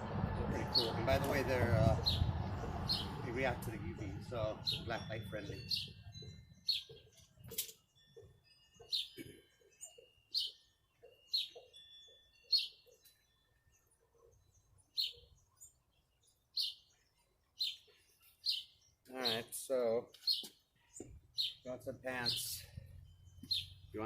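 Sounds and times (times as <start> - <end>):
bird chirping: 0.6 - 24.0.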